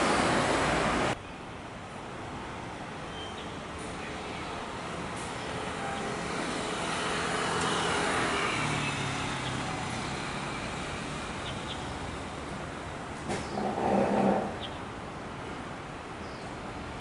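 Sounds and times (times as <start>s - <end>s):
tram running noise: 0.0s - 1.2s.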